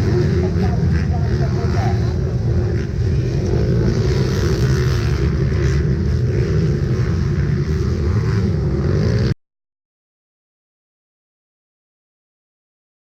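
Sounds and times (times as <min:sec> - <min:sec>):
motocross bike engines: 0:00.0 - 0:09.4.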